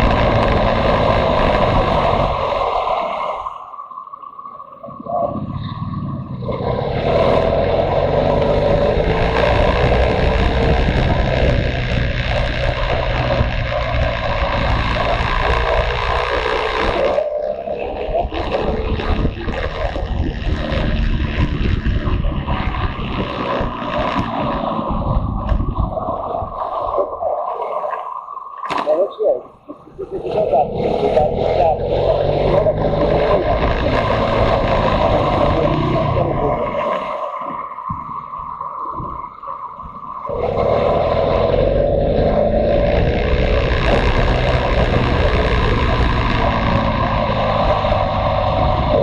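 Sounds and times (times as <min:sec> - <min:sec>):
motorcycle engine running: 0:00.0 - 0:02.6, 0:05.9 - 0:25.9, 0:30.5 - 0:36.5, 0:40.3 - 0:49.0
wind buffeting microphone: 0:00.0 - 0:03.0, 0:07.2 - 0:16.2, 0:17.9 - 0:27.3
wind rush: 0:00.0 - 0:03.6, 0:05.1 - 0:17.2, 0:17.9 - 0:27.3, 0:30.2 - 0:49.0.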